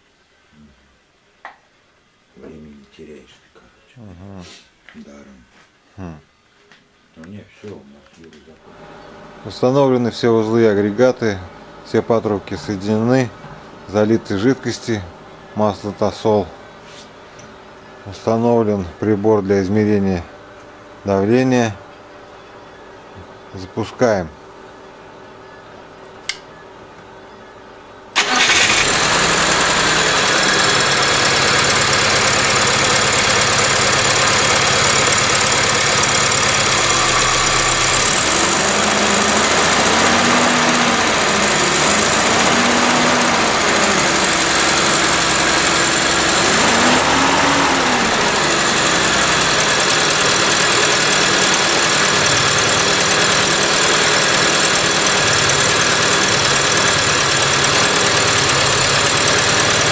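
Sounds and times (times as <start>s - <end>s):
brief click: 26.2s - 26.5s
engine starting and running: 28.1s - 59.9s.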